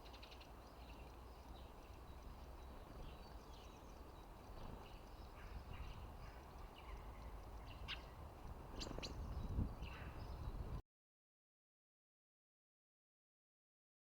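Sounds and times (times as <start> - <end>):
small songbirds chirping: 0.0 - 10.8.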